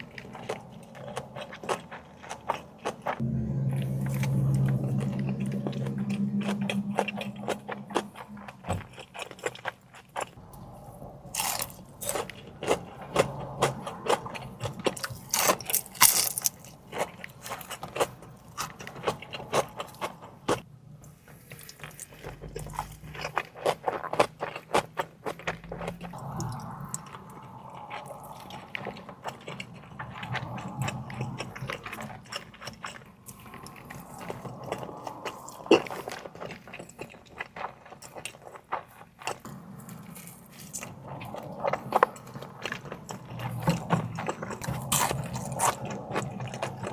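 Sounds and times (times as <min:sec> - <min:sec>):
biting and chewing seafood: 0:00.0 - 0:46.9.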